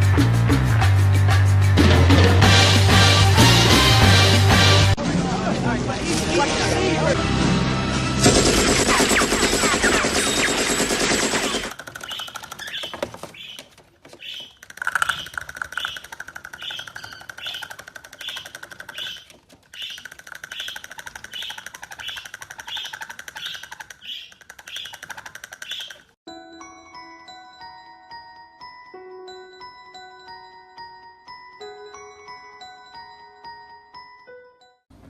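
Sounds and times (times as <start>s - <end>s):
loud music: 0.0s - 10.1s.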